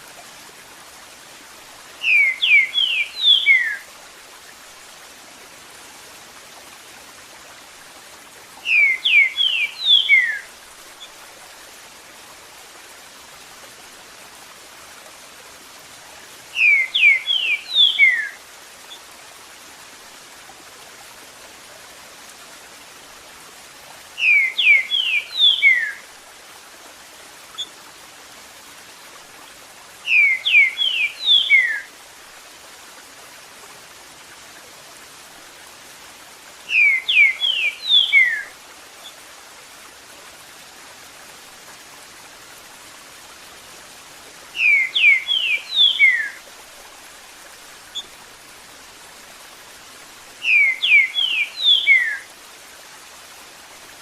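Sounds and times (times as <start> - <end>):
running water hiss: 0.0 - 54.0
bird singing whistled notes: 2.0 - 3.8, 8.6 - 10.5, 16.6 - 18.4, 24.2 - 26.0, 30.1 - 31.9, 36.7 - 38.5, 44.6 - 46.4, 50.4 - 52.2.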